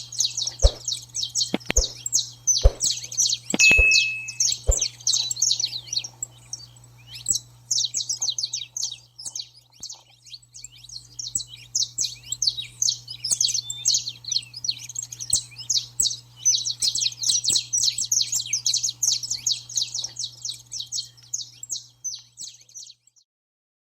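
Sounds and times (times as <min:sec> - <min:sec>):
low steady hum: 0:00.0 - 0:07.8
finches chirping and singing: 0:00.0 - 0:23.2.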